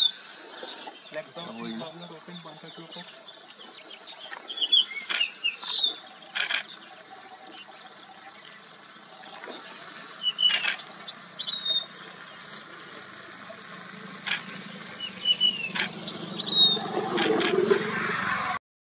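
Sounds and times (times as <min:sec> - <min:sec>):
songbird chirping: 0:00.6 - 0:09.6, 0:10.2 - 0:12.5, 0:15.0 - 0:17.0
sharp clicks: 0:06.3 - 0:06.8, 0:10.4 - 0:10.9, 0:14.2 - 0:14.5, 0:15.7 - 0:16.2, 0:17.0 - 0:17.8.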